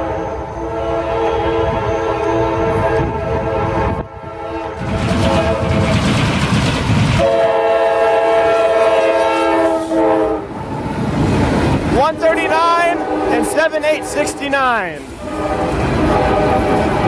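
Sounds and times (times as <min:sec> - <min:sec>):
train rumbling: 0:00.0 - 0:17.0
locomotive horn blasts: 0:00.1 - 0:05.8, 0:07.2 - 0:10.5, 0:12.3 - 0:14.6, 0:15.2 - 0:17.0.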